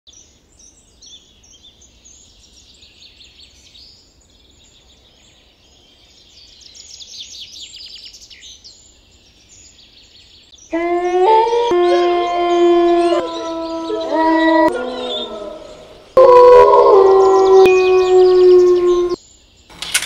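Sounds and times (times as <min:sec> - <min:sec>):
songbirds chirping: 0:00.1 - 0:19.8
bird repeated falling notes: 0:10.8 - 0:19.2.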